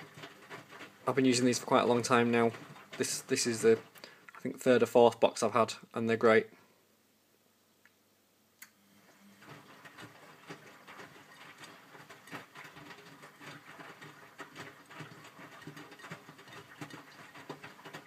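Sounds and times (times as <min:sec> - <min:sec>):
wet laundry and water splashing: 0:00.0 - 0:04.7, 0:09.4 - 0:18.0
washing machine drum turning: 0:09.4 - 0:18.0.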